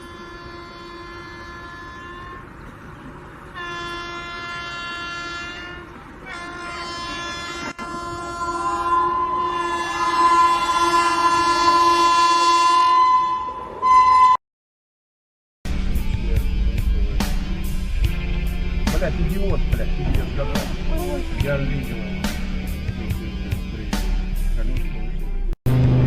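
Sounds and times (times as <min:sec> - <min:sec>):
locomotive horn blasts: 0:00.0 - 0:02.8, 0:03.4 - 0:14.4.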